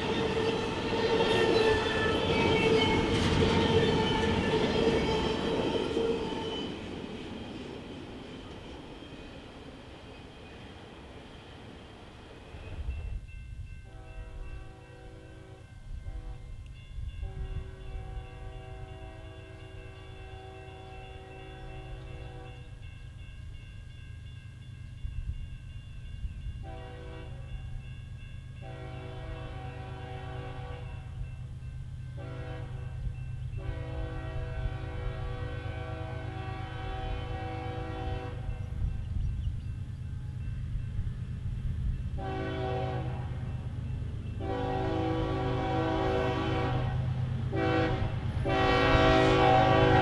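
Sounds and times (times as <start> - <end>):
low rumble of train: 0.0 - 50.0
locomotive air horn blasts: 13.9 - 16.5, 17.2 - 22.7, 26.6 - 27.5, 28.6 - 31.2, 32.2 - 38.6, 42.2 - 43.5, 44.4 - 50.0.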